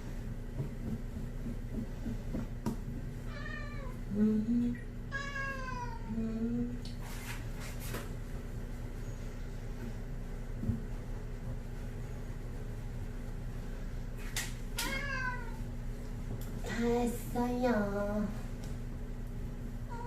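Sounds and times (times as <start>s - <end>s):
cat meowing: 3.3s - 3.9s, 5.1s - 6.1s, 14.8s - 15.6s.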